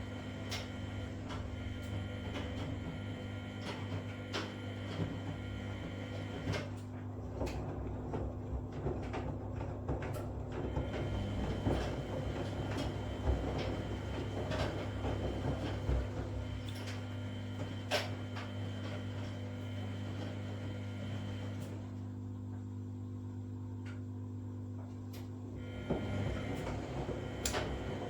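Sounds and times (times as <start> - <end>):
washing machine motor hum: 0.0 - 28.0.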